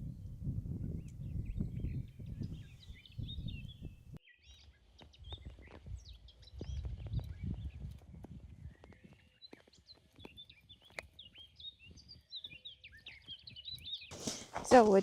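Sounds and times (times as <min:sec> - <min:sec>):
small birds chirping: 0:00.0 - 0:15.0
footsteps crunching through snow: 0:14.1 - 0:15.0.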